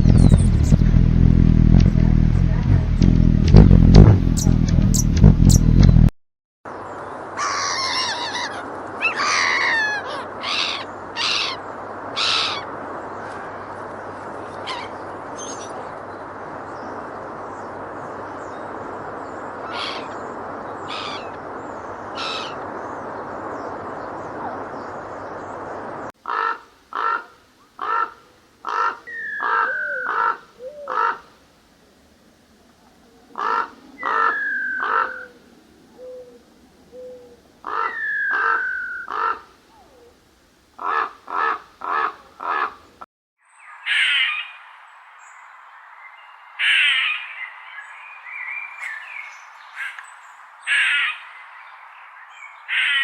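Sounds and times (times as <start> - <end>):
harsh animal calls: 7.4 - 11.6.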